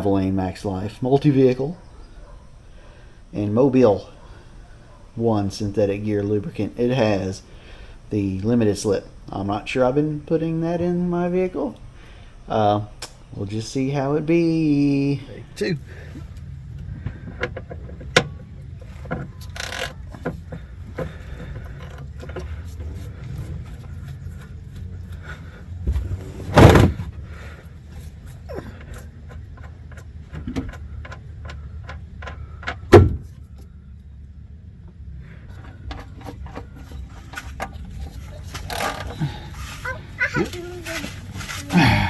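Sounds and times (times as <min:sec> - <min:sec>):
low steady hum: 0:00.0 - 0:42.0
loud knocks: 0:32.2 - 0:33.4.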